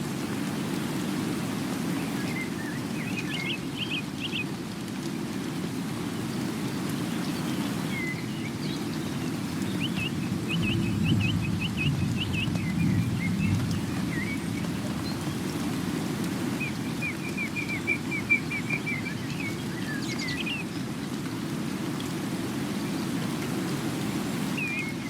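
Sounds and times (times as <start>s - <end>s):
bird chirping: 7.2s - 15.6s, 16.6s - 20.7s.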